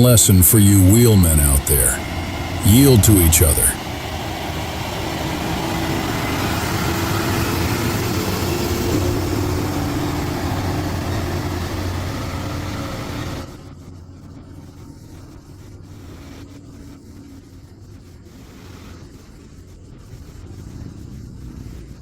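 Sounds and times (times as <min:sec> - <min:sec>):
vehicle engine running: 0:00.8 - 0:02.6, 0:03.8 - 0:13.6
road noise: 0:01.2 - 0:13.5.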